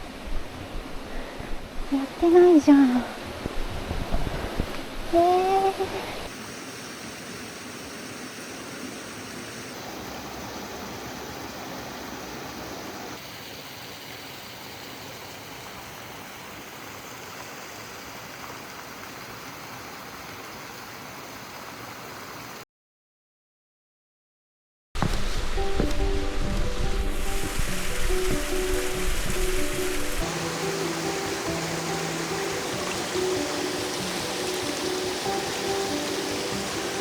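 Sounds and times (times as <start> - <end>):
stream water rushing: 0.0 - 22.6, 25.0 - 37.0.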